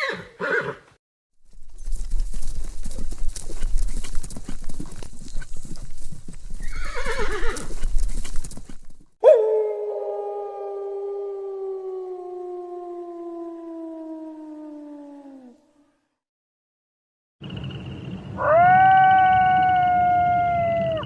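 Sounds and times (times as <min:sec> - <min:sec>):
horse whinnying: 0:00.0 - 0:00.8, 0:06.6 - 0:07.9
horse hooves clopping: 0:01.4 - 0:09.2
long steady howl: 0:09.2 - 0:15.7, 0:18.4 - 0:21.0.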